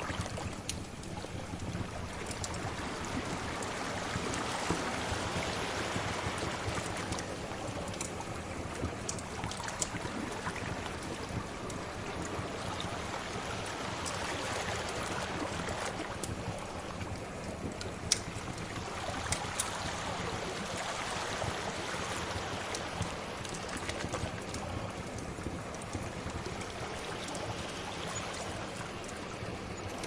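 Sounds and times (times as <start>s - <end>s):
sea waves washing: 0.0s - 30.0s
wood fire crackling: 0.1s - 5.5s, 6.4s - 30.0s.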